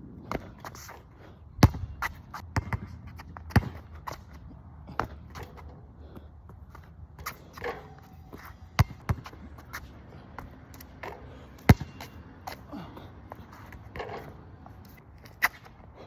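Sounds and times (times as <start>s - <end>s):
basketball bouncing: 1.6s - 5.6s, 8.8s - 12.6s, 13.3s - 14.4s
shoe scuffs: 6.6s - 15.9s.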